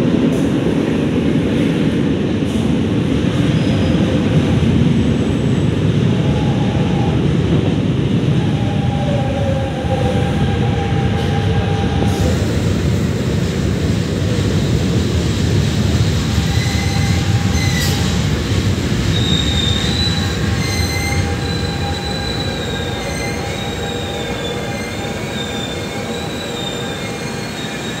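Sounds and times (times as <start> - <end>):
train rumble: 0.0 - 28.0
high metallic wheel squeals: 16.5 - 18.1, 19.1 - 28.0.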